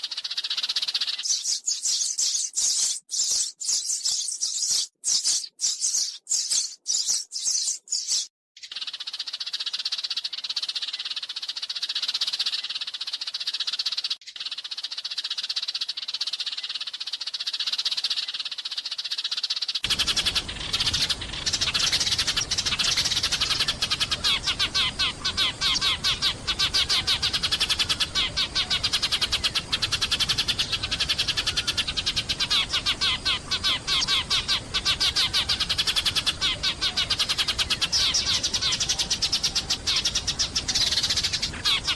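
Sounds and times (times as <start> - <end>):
sparrows chirping: 0.0 - 41.9.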